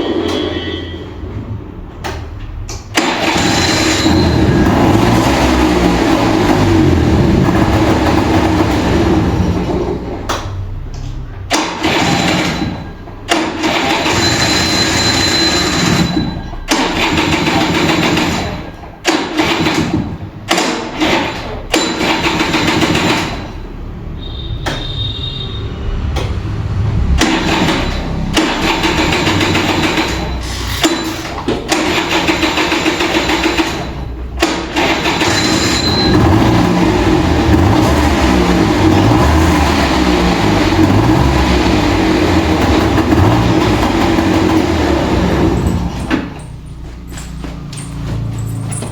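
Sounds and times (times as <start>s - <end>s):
scooter electric starter cranking: 2.5s - 9.6s, 11.6s - 25.4s, 27.1s - 38.3s.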